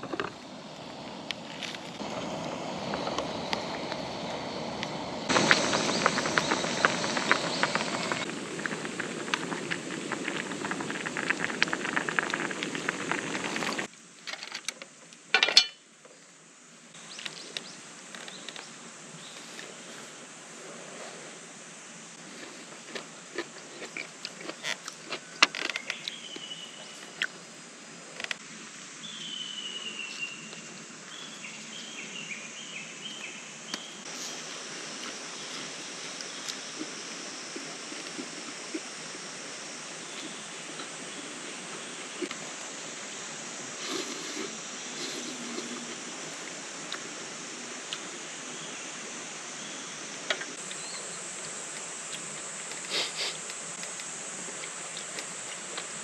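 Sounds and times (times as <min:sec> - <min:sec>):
mountain stream running: 0:00.0 - 0:13.9, 0:33.6 - 0:56.0
campfire crackling and popping: 0:04.8 - 0:13.9
bird singing whistled notes: 0:25.8 - 0:27.0, 0:29.0 - 0:34.0.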